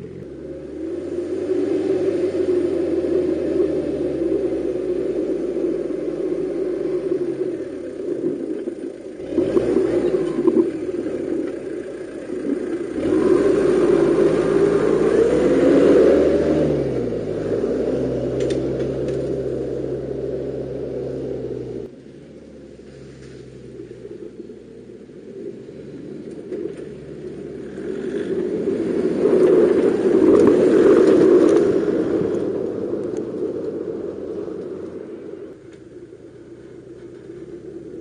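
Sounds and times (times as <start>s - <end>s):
vehicle engine running: 0.0s - 38.0s.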